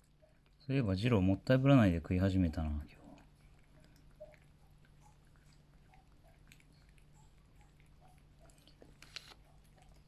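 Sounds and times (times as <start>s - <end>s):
low steady hum: 0.0s - 10.0s
cat chewing food: 2.4s - 10.0s.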